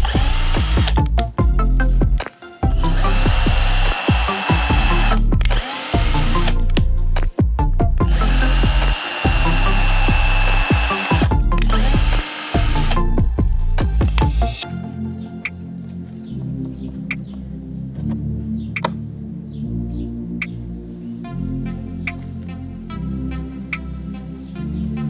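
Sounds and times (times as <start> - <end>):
electronic music with buzzing bass: 0.0 - 15.7.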